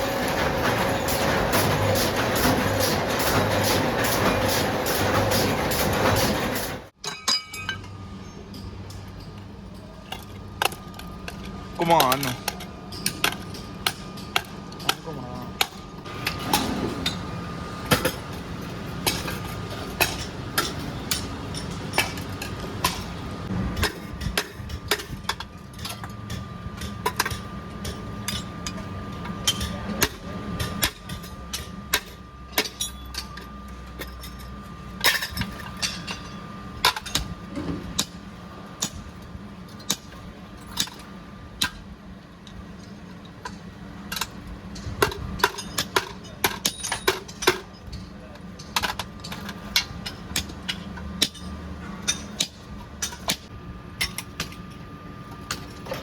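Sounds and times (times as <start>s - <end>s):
machine hum: 0.0s - 7.0s
metallic knocks and clinks: 7.0s - 9.4s.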